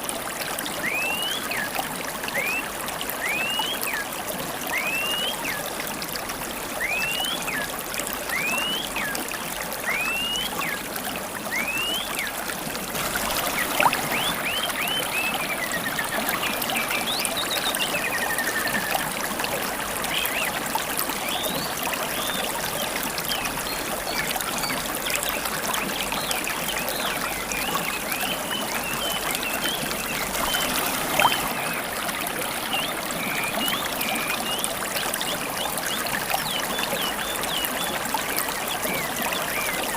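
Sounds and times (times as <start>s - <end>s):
river water babbling: 0.0s - 39.9s
birds whistling and chirping: 0.8s - 1.7s, 2.3s - 4.0s, 4.7s - 5.6s, 6.8s - 7.7s, 8.3s - 9.2s, 9.9s - 10.8s, 11.5s - 12.4s, 13.5s - 19.1s, 26.1s - 31.8s, 32.7s - 39.9s.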